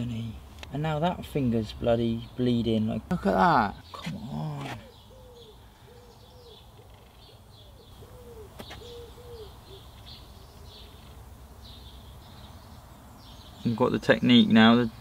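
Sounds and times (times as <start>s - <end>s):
birds calling low arched notes: 0.0s - 15.0s
higher bird chirps: 3.7s - 14.7s.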